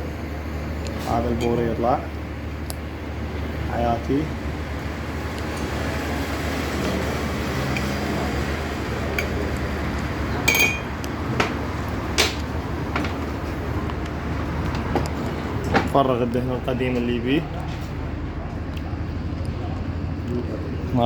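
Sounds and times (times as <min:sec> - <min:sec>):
steady background hum: 0:00.0 - 0:21.0
metal parts clinking and knocking: 0:10.5 - 0:11.0.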